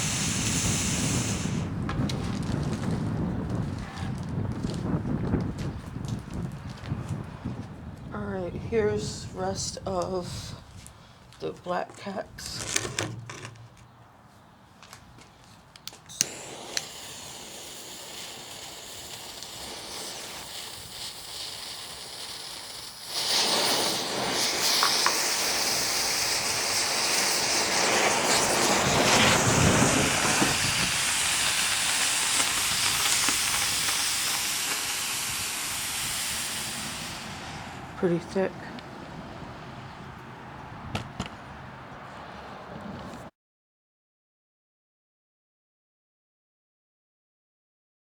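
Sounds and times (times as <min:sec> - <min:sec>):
smoke balls hissing: 0:00.0 - 0:14.0, 0:15.3 - 0:40.2
sharp clicks: 0:15.7 - 0:16.9.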